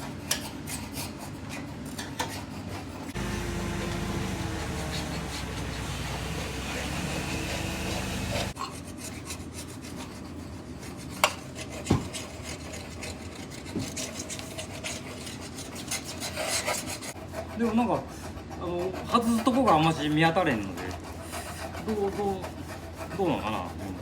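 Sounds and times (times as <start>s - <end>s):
belt conveyor humming and rasping: 3.1s - 8.6s.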